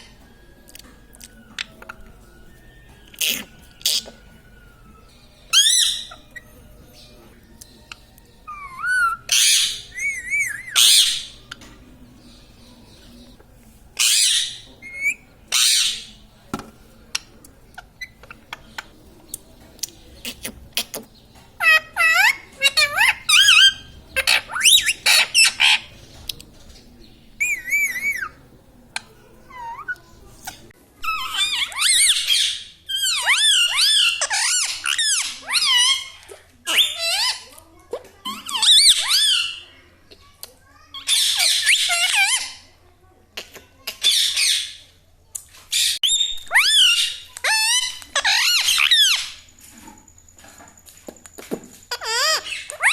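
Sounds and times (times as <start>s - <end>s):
parakeet squawking harshly: 5.5s - 6.2s, 8.5s - 11.4s, 14.0s - 16.1s, 21.6s - 25.9s, 45.8s - 49.4s, 51.9s - 52.9s.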